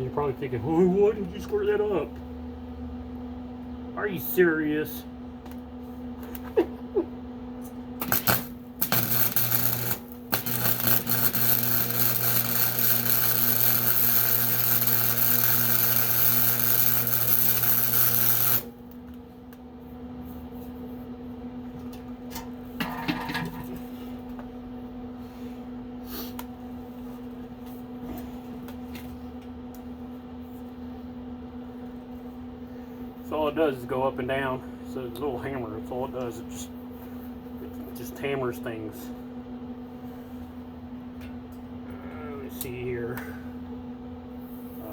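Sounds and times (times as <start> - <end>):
low electrical hum: 0.0 - 44.9
arc welding crackling buzz: 7.6 - 19.6.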